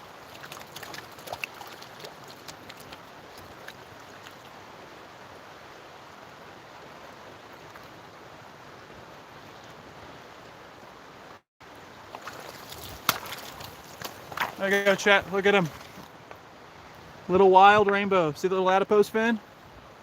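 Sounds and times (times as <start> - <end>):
stream water flowing: 0.0 - 17.7.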